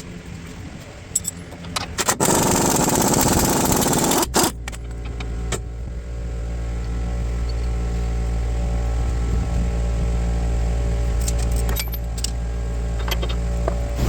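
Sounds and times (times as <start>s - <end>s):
hand tools clinking and rattling: 1.1s - 3.2s, 11.2s - 12.4s
low machine hum: 3.4s - 14.0s.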